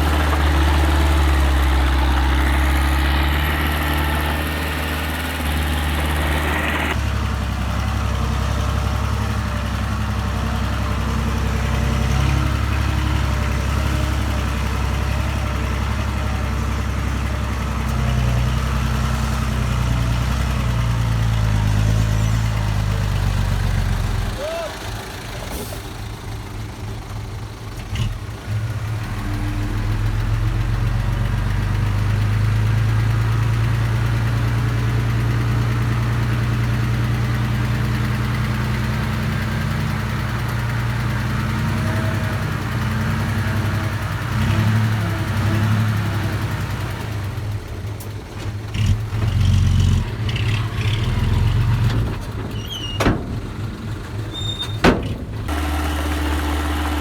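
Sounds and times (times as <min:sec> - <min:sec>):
earthmoving machine engine running: 0:00.0 - 0:07.3, 0:55.4 - 0:57.0.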